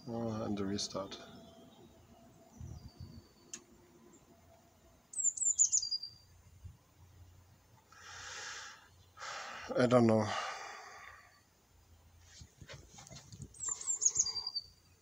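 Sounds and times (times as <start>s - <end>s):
songbird singing: 0.0s - 15.0s
breathy hiss: 7.9s - 11.4s.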